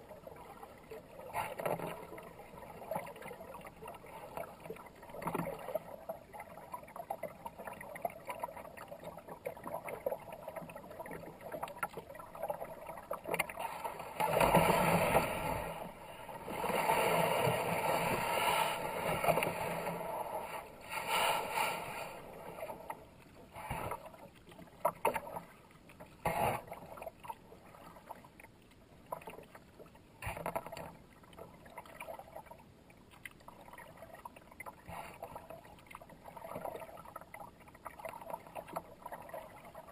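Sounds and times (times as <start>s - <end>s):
water washing along hull: 8.4s - 28.2s
paddle strokes splashing: 13.2s - 27.2s.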